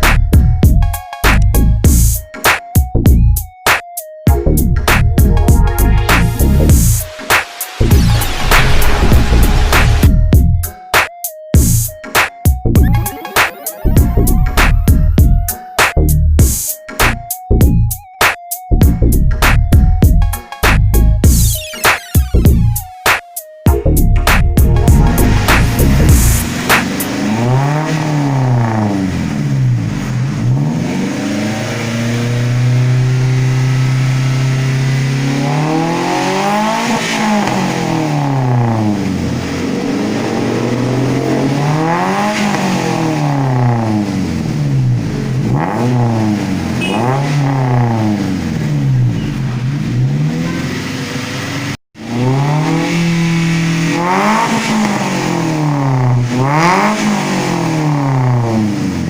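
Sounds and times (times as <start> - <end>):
car engine revving: 4.8 - 10.4, 24.3 - 59.0.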